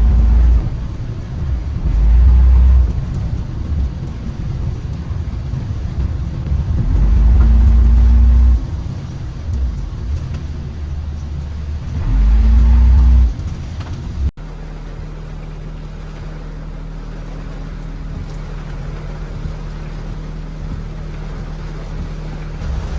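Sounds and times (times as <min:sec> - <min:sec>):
car engine accelerating: 0:00.0 - 0:22.9.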